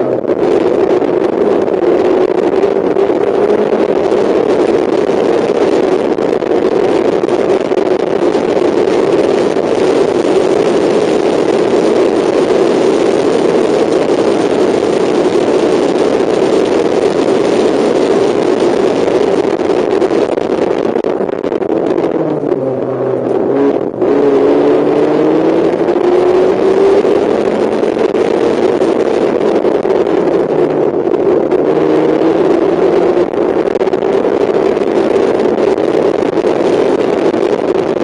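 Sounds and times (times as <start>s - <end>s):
race car engine at high revs: 0.0s - 38.0s
rush of wind noise: 0.0s - 38.0s.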